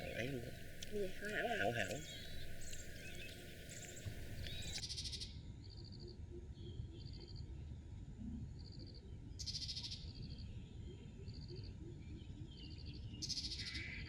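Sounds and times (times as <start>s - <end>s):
buzzy pulsed animal calls: 0.0s - 4.8s.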